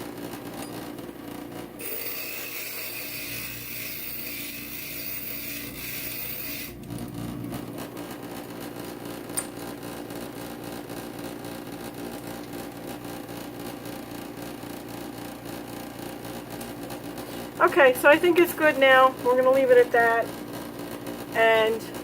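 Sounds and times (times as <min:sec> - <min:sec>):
grinder motor running: 0:01.6 - 0:09.2.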